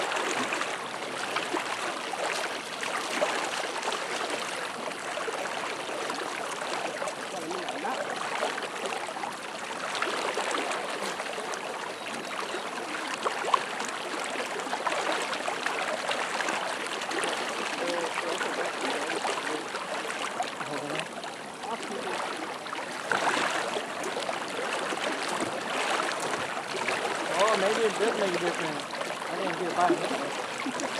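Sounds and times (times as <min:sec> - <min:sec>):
fast-flowing river water: 0:00.0 - 0:30.9.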